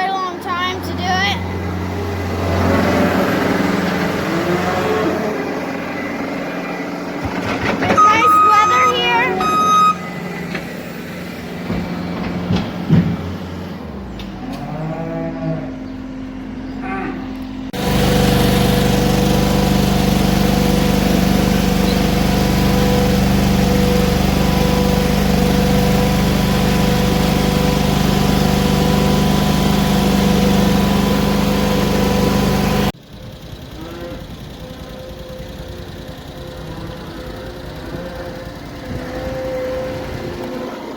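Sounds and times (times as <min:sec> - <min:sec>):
farm machinery engine running: 0:00.0 - 0:14.6, 0:15.9 - 0:40.9
cattle mooing: 0:04.2 - 0:05.5, 0:14.4 - 0:15.9, 0:16.8 - 0:17.4, 0:33.8 - 0:34.3, 0:36.6 - 0:40.6.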